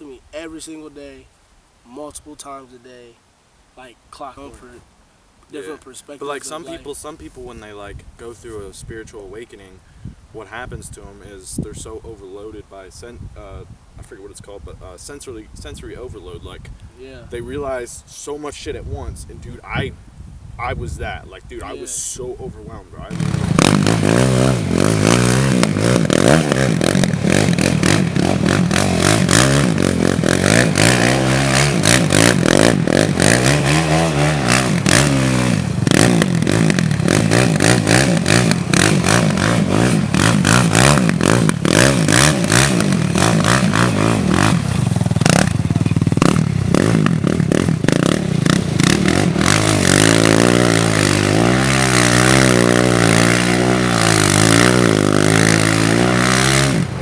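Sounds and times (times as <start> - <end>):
four-wheeler engine revving: 23.0 - 57.0.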